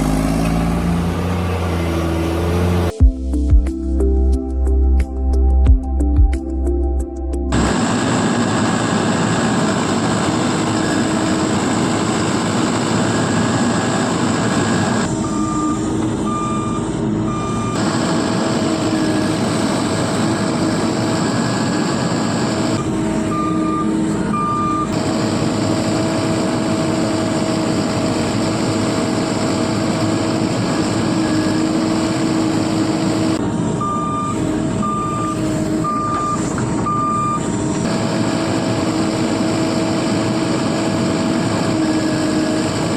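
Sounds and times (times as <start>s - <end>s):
heavy vehicle engine running: 0.0s - 6.1s, 7.4s - 42.9s
reversing alarm beeping: 12.7s - 25.0s, 33.2s - 38.8s.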